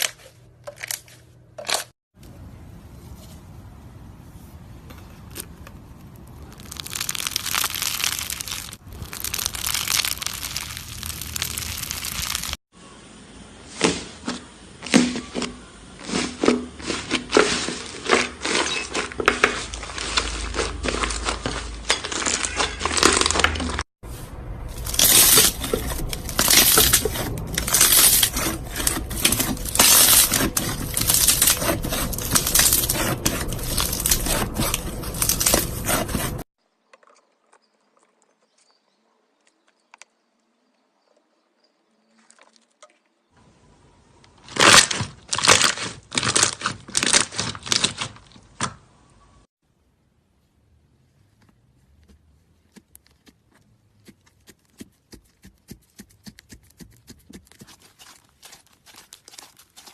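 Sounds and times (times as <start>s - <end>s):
slime squishing and crackling: 5.3s - 12.6s, 19.6s - 23.9s, 24.7s - 36.5s, 44.5s - 48.3s, 52.4s - 59.9s.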